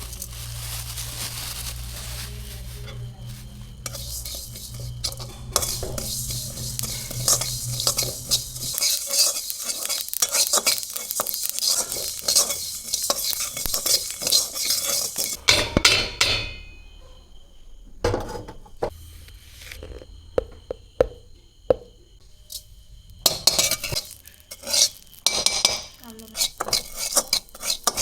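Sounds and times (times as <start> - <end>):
spoon stirring in a bowl: 2.8 - 15.4, 23.3 - 28.0.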